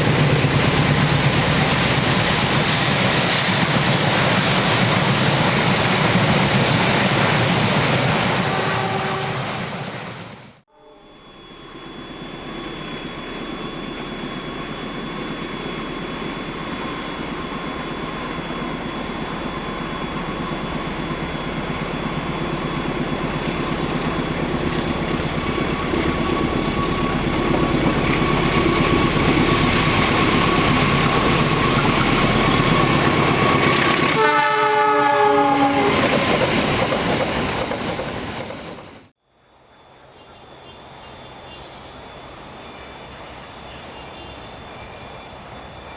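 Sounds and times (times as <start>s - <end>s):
train passing: 0.0s - 10.6s, 11.8s - 45.9s
locomotive horn: 8.2s - 11.2s, 33.1s - 36.2s.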